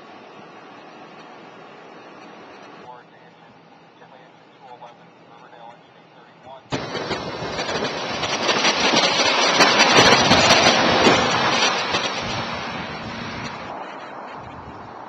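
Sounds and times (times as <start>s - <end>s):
vehicle passing on snowy road: 6.8s - 15.0s.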